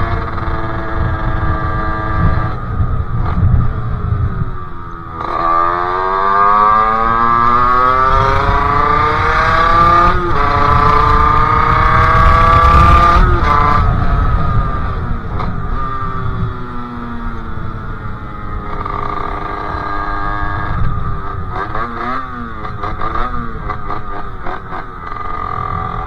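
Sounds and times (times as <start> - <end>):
two-stroke engine accelerating: 0.0 - 26.0
wind rumble on microphone: 0.0 - 26.0.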